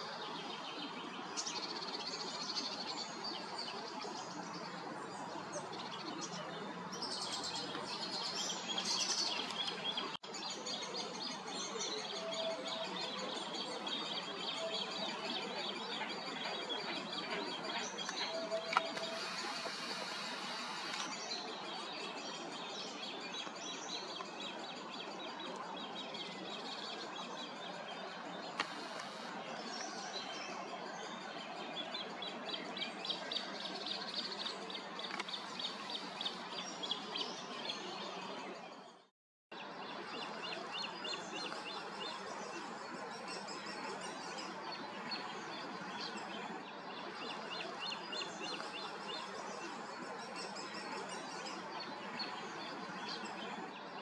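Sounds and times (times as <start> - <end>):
small birds chirping: 0.4 - 30.5, 31.1 - 54.0
background hiss: 18.0 - 21.3, 28.5 - 29.8.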